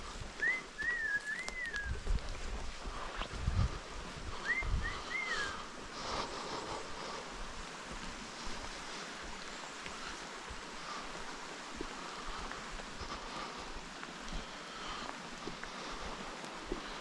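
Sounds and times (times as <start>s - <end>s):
wind gusts buffeting microphone: 0.0s - 8.8s
rushing wind: 0.0s - 17.0s
bird whistling: 0.4s - 2.0s, 4.4s - 5.6s.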